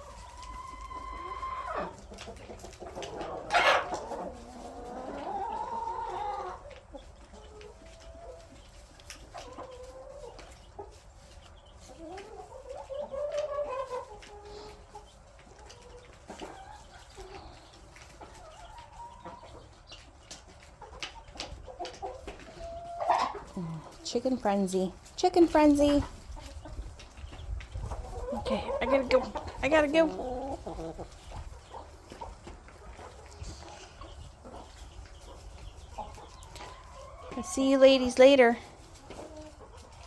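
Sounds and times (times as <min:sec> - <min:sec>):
chicken squawk: 0:00.0 - 0:02.0, 0:03.3 - 0:06.6
chickens clucking: 0:00.0 - 0:40.0.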